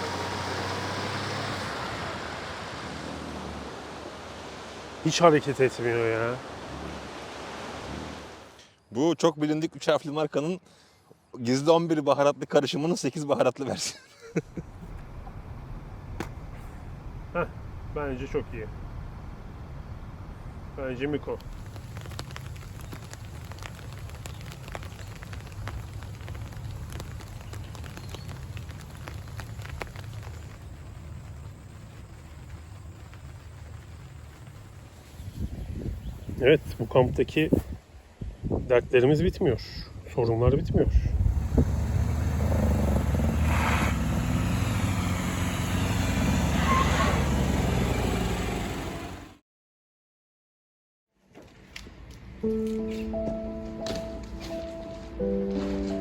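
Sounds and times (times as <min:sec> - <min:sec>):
rain drops ticking on a surface: 0:21.3 - 0:35.5.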